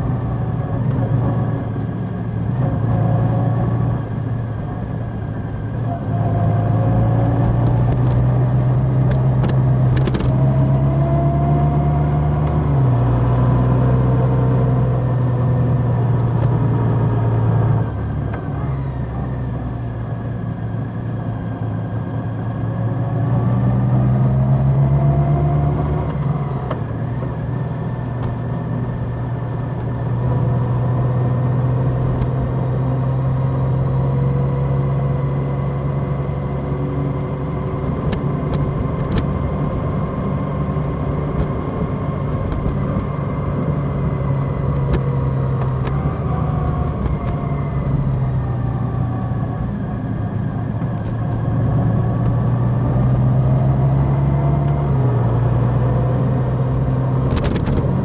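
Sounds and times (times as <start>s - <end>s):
motorcycle engine running: 26.2s - 54.1s.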